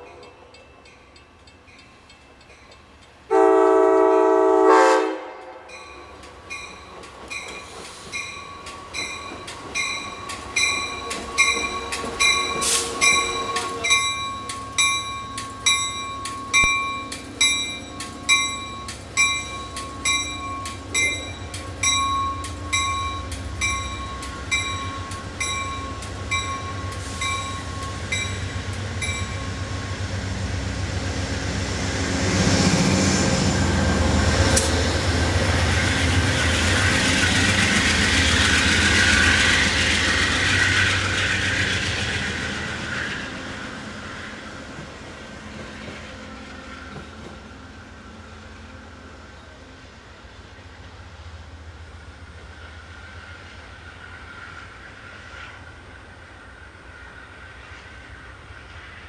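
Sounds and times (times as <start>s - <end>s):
railway warning bell: 0.0s - 4.1s, 5.6s - 30.3s
train rumbling past: 0.0s - 59.0s.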